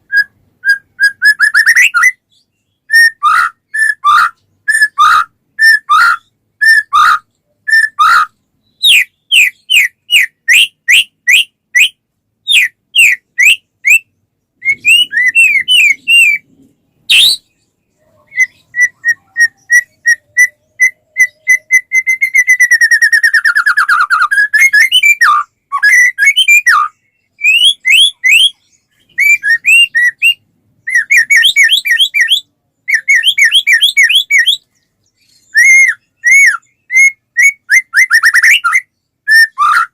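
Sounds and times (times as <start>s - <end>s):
bird whistled song: 0.0s - 39.9s
fast descending bird trill: 14.6s - 16.4s.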